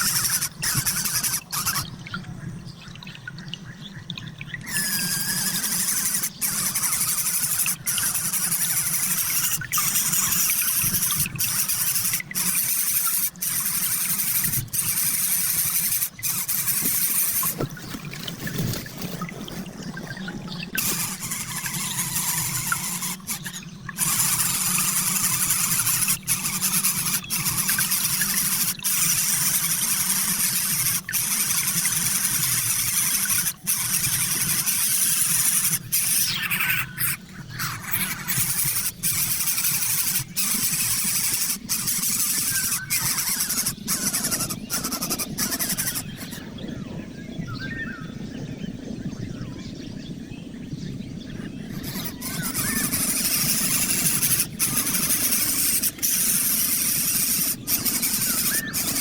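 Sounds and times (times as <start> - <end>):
birds screeching shrilly: 4.6 - 18.1, 20.8 - 46.6, 51.6 - 59.0.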